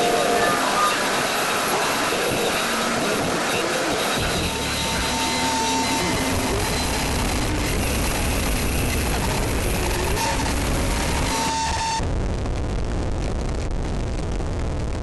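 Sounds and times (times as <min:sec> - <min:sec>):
harsh noise music: 0:00.0 - 0:12.0.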